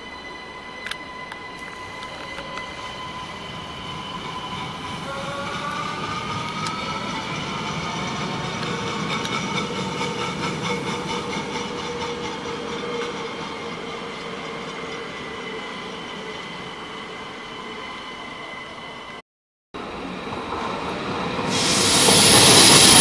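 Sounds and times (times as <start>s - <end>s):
steady high whine: 0.0s - 19.0s
train wheels rumbling: 0.0s - 19.1s, 19.8s - 23.0s
wheels clicking over rail joints: 4.2s - 15.1s.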